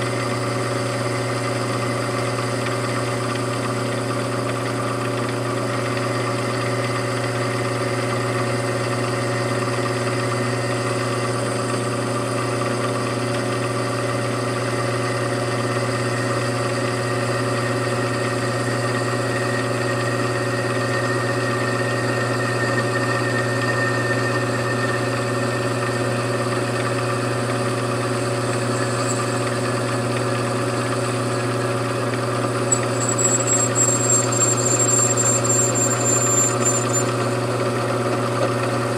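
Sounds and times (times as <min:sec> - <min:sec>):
machine tool motor hum: 0:25.2 - 0:37.5
thin high-pitched tone: 0:28.5 - 0:29.7, 0:32.7 - 0:37.2
click: 0:32.7 - 0:37.1.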